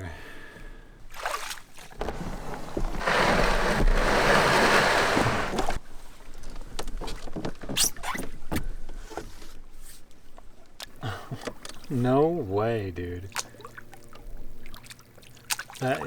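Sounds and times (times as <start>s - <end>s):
canoe hull scraping: 1.1s - 10.1s
knocks against canoe hull: 2.0s - 5.8s.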